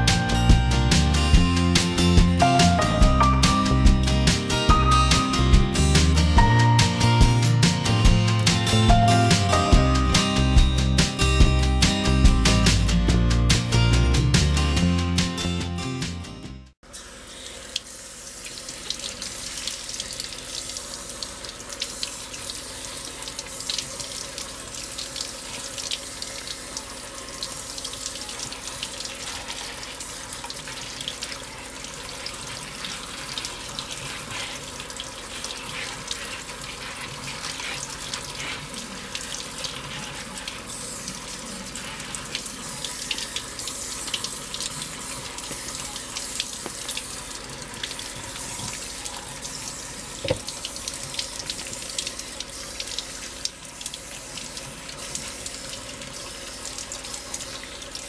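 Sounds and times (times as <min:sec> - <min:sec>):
faucet water splashing: 0:16.8 - 0:58.0.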